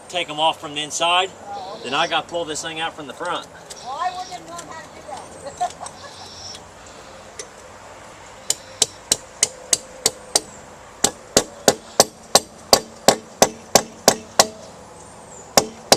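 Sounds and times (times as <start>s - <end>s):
hammer blows on metal: 8.5s - 14.7s.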